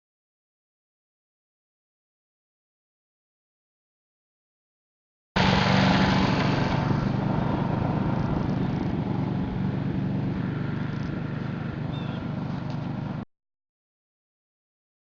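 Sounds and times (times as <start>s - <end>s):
engine droning: 5.4s - 13.3s.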